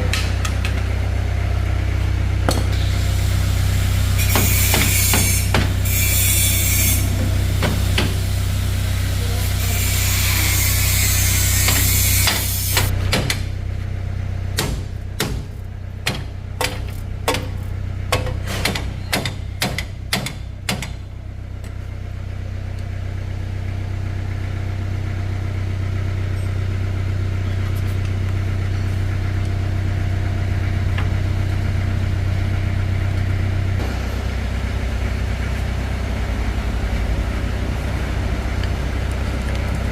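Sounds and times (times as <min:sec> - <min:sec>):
engine running: 0:00.0 - 0:39.9
sharp metal knocks: 0:14.6 - 0:21.0.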